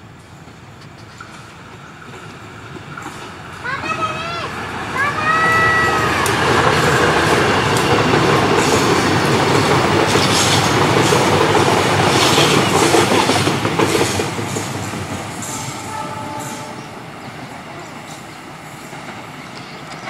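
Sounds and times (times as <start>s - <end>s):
train rolling rumble: 0.0s - 20.0s
wheels clicking over rail joints: 5.2s - 16.4s.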